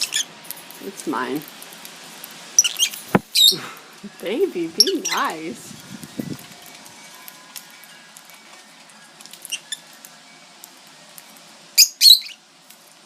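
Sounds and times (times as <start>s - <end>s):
bird chirps: 11.8s - 12.4s
shrill bird squawks: 11.8s - 12.4s.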